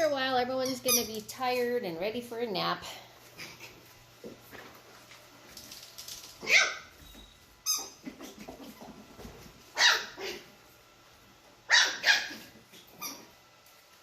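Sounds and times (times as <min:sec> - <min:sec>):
puppies barking: 0:06.4 - 0:06.9, 0:09.8 - 0:10.5, 0:11.7 - 0:12.6.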